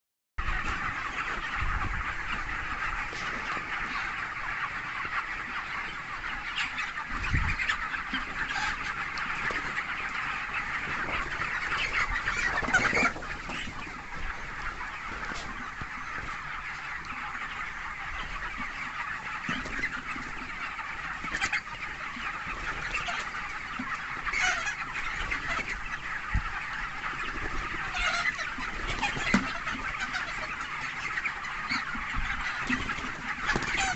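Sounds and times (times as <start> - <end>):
flock of chickens chirping: 0.4 - 33.9.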